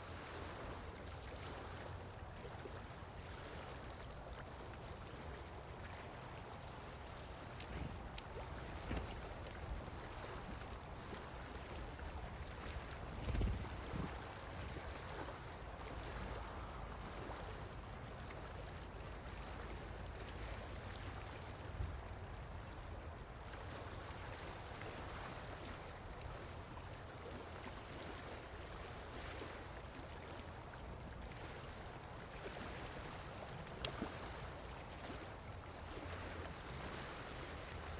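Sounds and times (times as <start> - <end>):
faint clicks: 7.4 - 13.9, 33.8 - 34.1.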